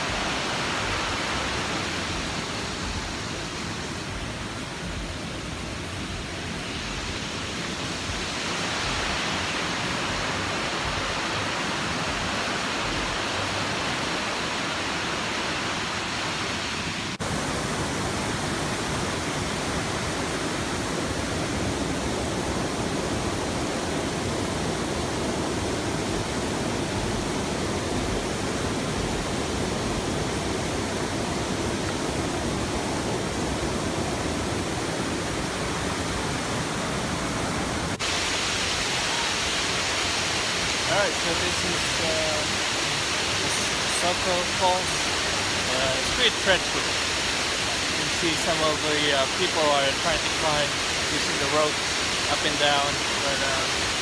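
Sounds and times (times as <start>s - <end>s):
waterfall roaring: 0.0s - 54.0s.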